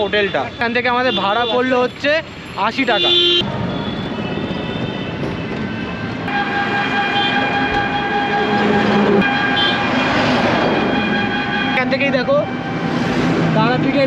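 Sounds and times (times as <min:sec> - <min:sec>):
rumbling travel noise: 0:03.4 - 0:14.0
long steady horn tone: 0:06.3 - 0:12.8.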